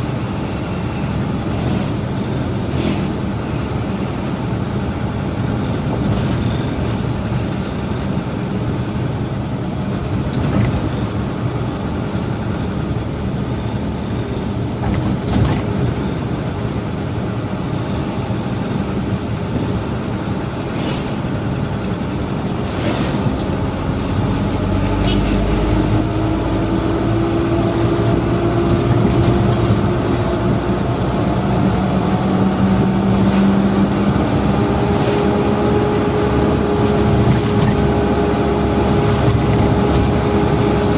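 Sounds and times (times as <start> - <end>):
truck diesel engine running: 16.1 - 40.9.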